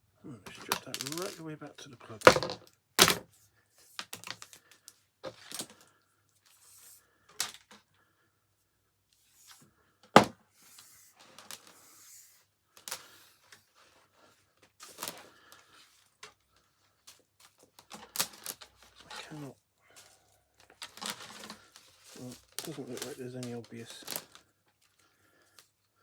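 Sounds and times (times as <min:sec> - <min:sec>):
tools clicking and scraping on plastic: 0:00.5 - 0:01.4, 0:04.0 - 0:05.9, 0:14.6 - 0:19.0, 0:20.6 - 0:24.9.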